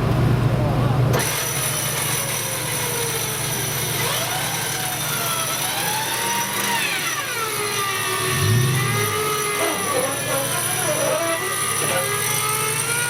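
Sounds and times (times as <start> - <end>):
vehicle engine revving: 5.7 - 13.0.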